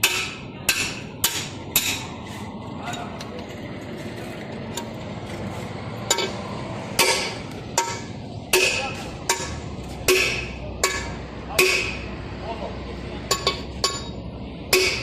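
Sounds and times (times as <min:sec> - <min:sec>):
hammer striking metal: 0:00.0 - 0:02.1, 0:06.1 - 0:06.4, 0:07.0 - 0:12.1, 0:13.3 - 0:15.0.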